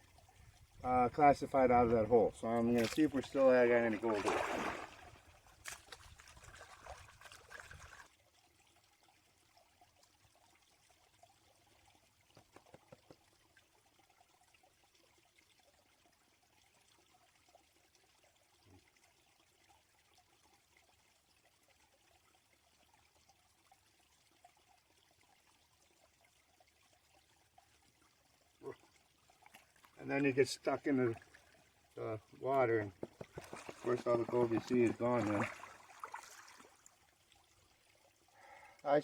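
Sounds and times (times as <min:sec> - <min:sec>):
water trickling and sloshing: 0:00.0 - 0:39.0.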